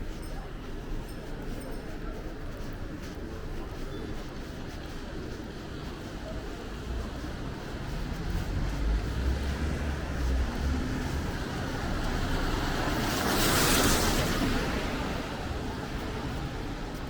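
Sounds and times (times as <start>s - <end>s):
tyres hissing on wet road: 6.9s - 17.0s.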